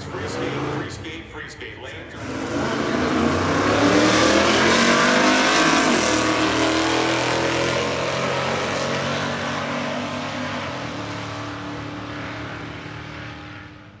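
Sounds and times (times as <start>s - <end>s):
race car engine at full throttle: 0.0s - 14.0s.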